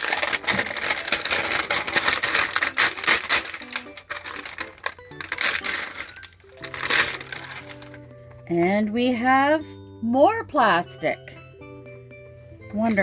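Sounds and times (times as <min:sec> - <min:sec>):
plastic wrap crinkling and tearing: 0:00.0 - 0:08.6
background music: 0:00.0 - 0:13.0.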